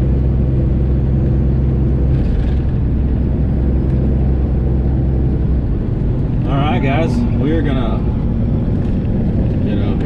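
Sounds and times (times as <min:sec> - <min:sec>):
truck diesel engine droning: 0:00.0 - 0:10.0.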